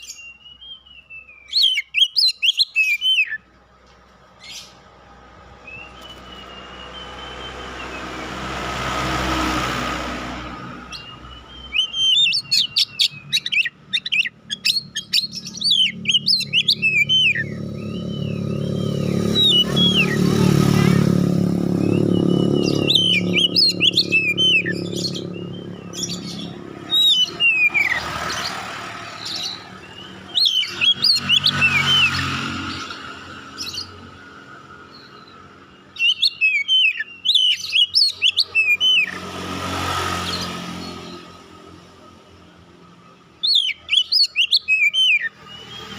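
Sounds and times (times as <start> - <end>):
bird singing chirps and whistles: 0.0 - 3.5, 5.5 - 8.5, 10.8 - 34.0, 34.9 - 39.3, 43.4 - 45.9
rumble of passing vehicles: 0.0 - 45.9.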